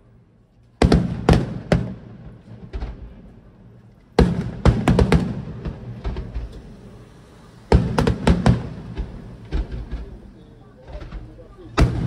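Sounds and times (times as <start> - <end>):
firework shells bursting: 4.2 - 10.4.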